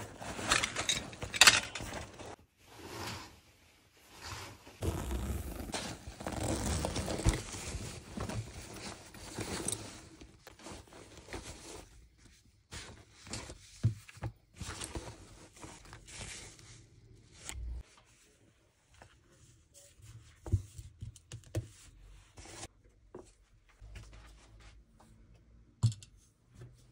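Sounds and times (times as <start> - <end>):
rustling and scraping: 0.0 - 3.4, 4.0 - 18.2.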